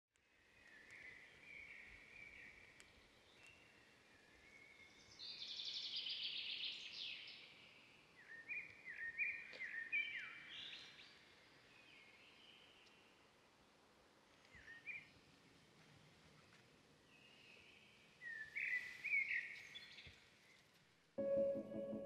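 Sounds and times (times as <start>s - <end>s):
songbirds singing: 0.2s - 13.2s.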